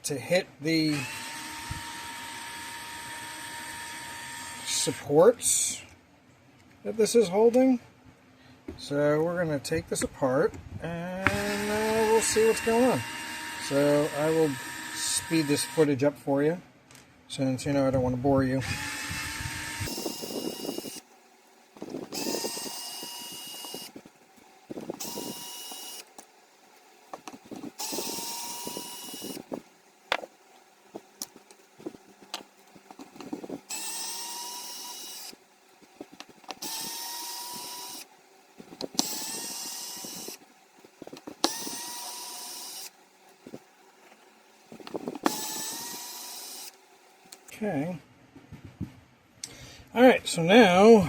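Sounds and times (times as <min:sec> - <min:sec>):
power drill whirring: 0:00.8 - 0:05.1, 0:11.2 - 0:15.9, 0:18.6 - 0:21.1, 0:21.8 - 0:24.1, 0:24.7 - 0:26.2, 0:27.5 - 0:29.6, 0:33.3 - 0:35.4, 0:36.5 - 0:38.1, 0:38.7 - 0:40.5, 0:41.1 - 0:43.7, 0:44.7 - 0:47.5.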